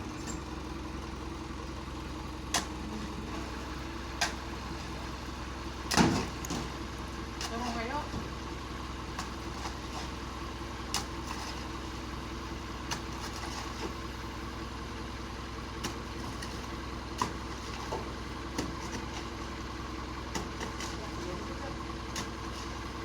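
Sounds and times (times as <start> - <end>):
truck engine idling: 0.0 - 23.0.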